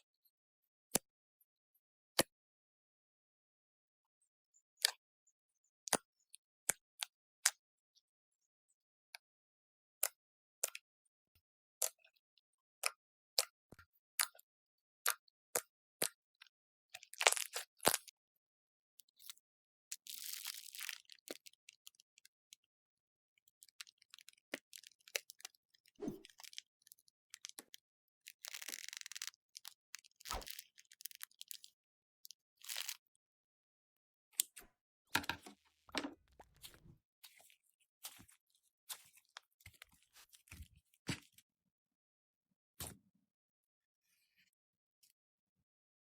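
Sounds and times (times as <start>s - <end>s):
slime crunching and crackling: 20.1s - 22.0s, 23.7s - 25.6s, 26.2s - 31.7s, 32.6s - 33.0s
slime clicking and popping: 28.3s - 31.5s.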